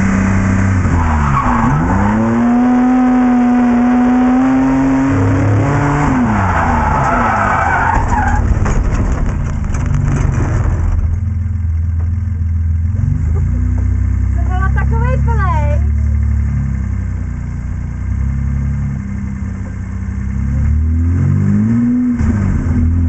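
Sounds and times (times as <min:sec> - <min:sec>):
car engine revving: 0:00.0 - 0:23.0
tyres squealing: 0:06.0 - 0:08.5.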